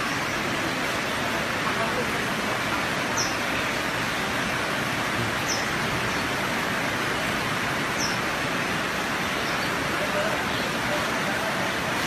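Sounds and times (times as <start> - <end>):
high falling bird chirp: 5.4 - 6.4.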